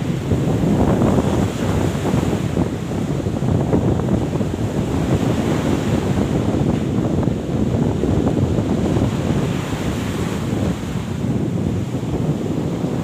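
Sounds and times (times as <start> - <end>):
sea waves washing: 0.0 - 13.0
wind buffeting microphone: 0.0 - 13.0.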